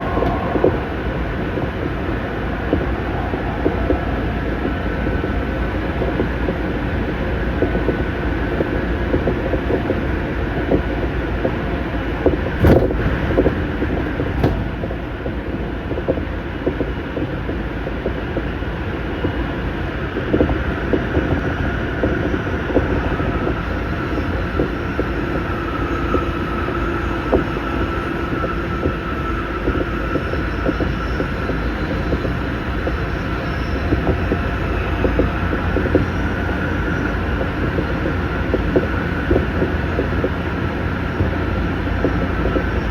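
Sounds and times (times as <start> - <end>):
faint whine: 0.0 - 42.9
train wheels rumbling on rail: 0.0 - 42.9.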